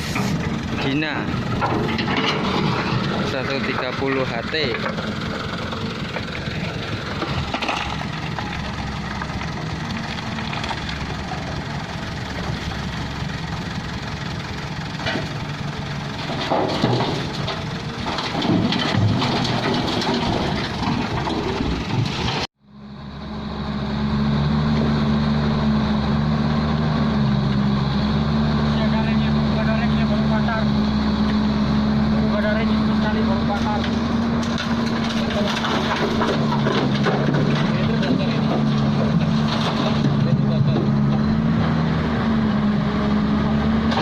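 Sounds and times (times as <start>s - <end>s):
heavy diesel machinery running: 0.0s - 44.0s
clanks and knocks of work: 0.1s - 12.7s, 13.3s - 22.5s, 32.4s - 41.7s.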